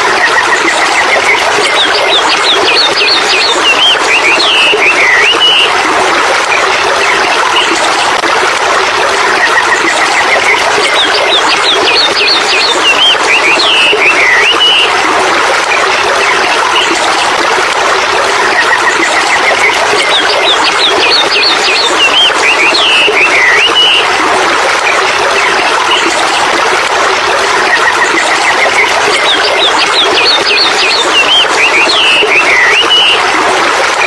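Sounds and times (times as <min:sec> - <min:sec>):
running water rushing: 0:00.0 - 0:34.0
birds singing: 0:00.5 - 0:05.7, 0:10.1 - 0:14.9, 0:18.8 - 0:24.1, 0:28.3 - 0:33.2.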